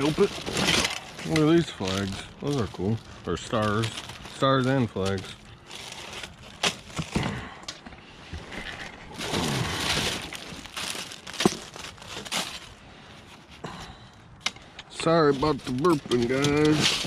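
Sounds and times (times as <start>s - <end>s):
decorations clicking and rustling: 0.0s - 8.0s, 14.4s - 17.0s.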